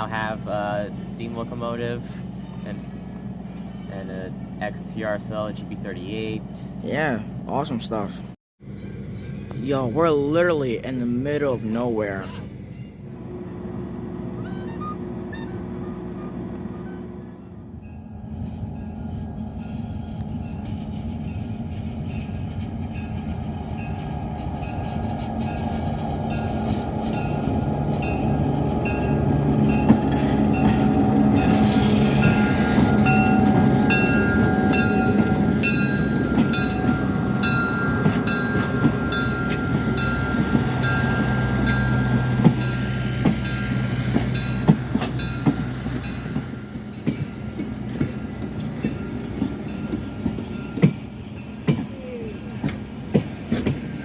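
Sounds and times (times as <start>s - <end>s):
diesel locomotive running: 0.0s - 54.0s
locomotive bell ringing: 8.7s - 13.0s, 17.8s - 53.0s.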